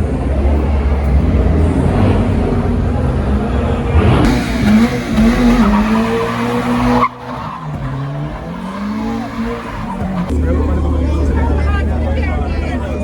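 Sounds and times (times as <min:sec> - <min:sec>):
car engine revving high: 0:00.3 - 0:10.8
tyres squealing and skidding: 0:03.4 - 0:10.4.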